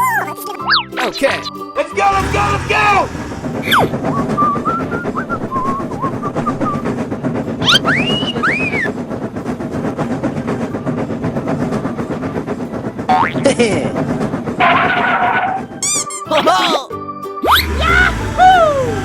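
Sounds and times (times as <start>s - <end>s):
train rumbling on track: 2.1s - 4.8s, 8.9s - 13.1s.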